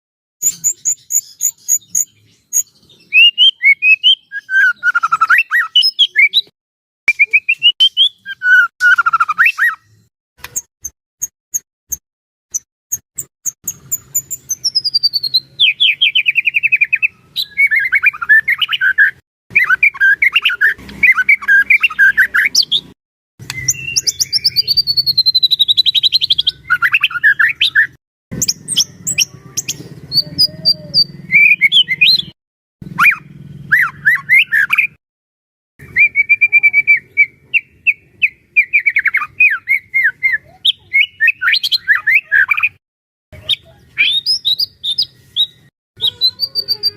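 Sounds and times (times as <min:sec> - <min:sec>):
songbird singing rapid trills: 0:00.4 - 0:06.5, 0:12.9 - 0:32.4, 0:43.4 - 0:46.9.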